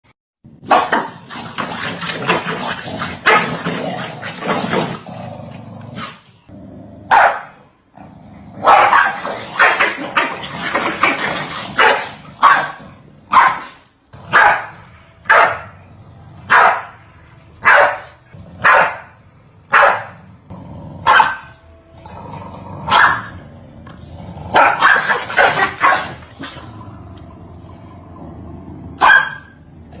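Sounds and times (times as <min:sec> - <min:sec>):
dogs barking: 0:07.1 - 0:07.7, 0:08.6 - 0:15.8, 0:16.5 - 0:17.0, 0:17.6 - 0:20.2, 0:21.0 - 0:21.6, 0:22.9 - 0:23.4, 0:24.5 - 0:26.6, 0:29.0 - 0:29.7.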